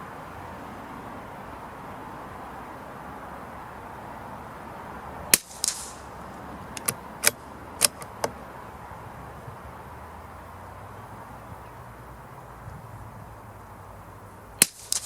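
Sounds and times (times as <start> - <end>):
rifle shot crack: 5.3 - 6.1, 14.6 - 15.0
rifle bolt metallic clicks: 6.8 - 8.4.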